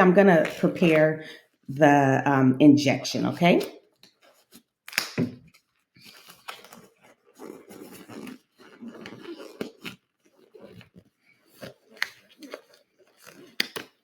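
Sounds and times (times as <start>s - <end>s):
packaging rustling and crinkling: 3.7s - 14.0s.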